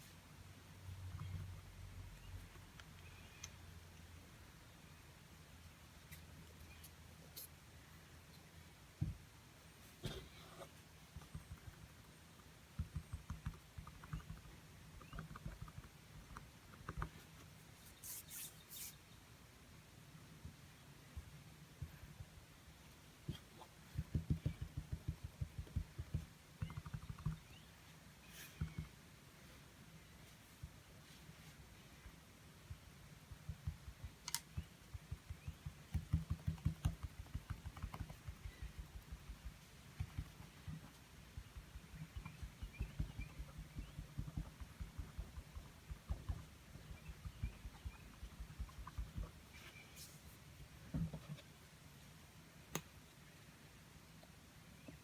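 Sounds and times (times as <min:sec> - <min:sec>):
paintbrush tapping on canvas: 0:23.9 - 0:27.4, 0:34.6 - 0:49.4.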